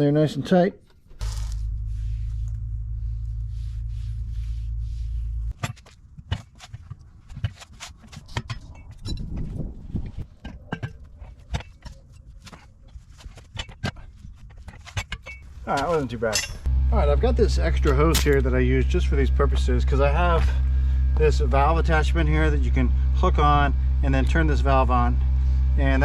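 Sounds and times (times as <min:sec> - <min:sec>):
steady low hum: 0:00.8 - 0:26.0
hand tools clinking: 0:14.8 - 0:16.7.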